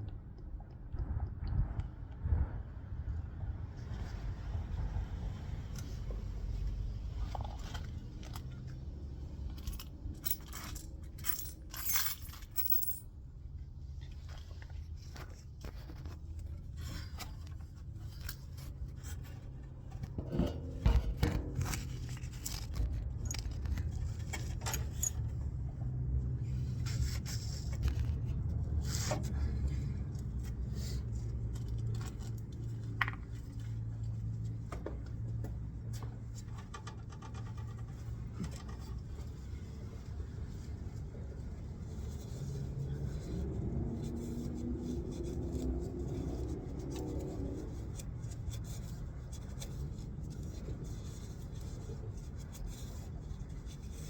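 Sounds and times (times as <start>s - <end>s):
low steady hum: 0.0s - 54.0s
metal tools clinking and scraping: 9.6s - 13.0s, 19.9s - 25.4s.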